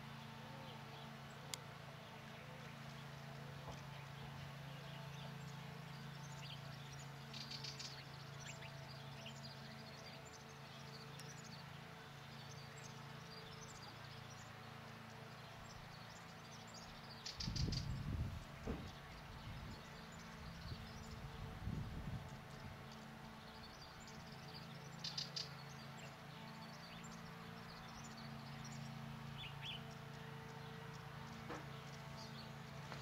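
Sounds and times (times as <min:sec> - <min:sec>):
small birds chirping and twittering: 0:00.0 - 0:33.0
steady low hum: 0:00.0 - 0:33.0
low rumbling thumps: 0:17.8 - 0:19.7
bird trills: 0:22.3 - 0:32.7.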